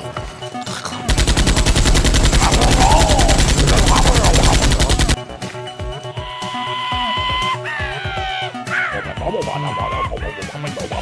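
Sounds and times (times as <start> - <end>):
rapid automatic gunfire: 1.1 - 5.2.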